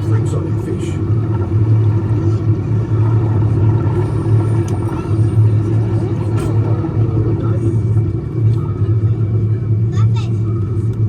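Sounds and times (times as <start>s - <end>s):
submarine cabin rumble and hum: 0.0s - 11.0s.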